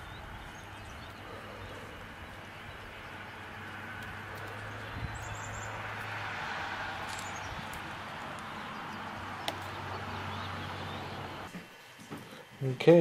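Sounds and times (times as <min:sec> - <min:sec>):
small birds chirping: 0:00.0 - 0:11.5
steady hiss: 0:06.8 - 0:13.0.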